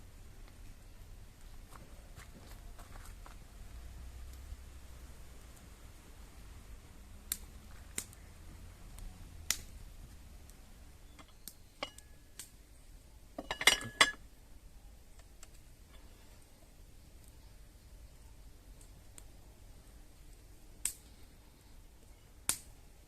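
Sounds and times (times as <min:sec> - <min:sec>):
cooking utensils clicking and clinking: 0:13.4 - 0:14.2
metallic ring: 0:13.4 - 0:14.2
utensils clattering: 0:13.4 - 0:14.2.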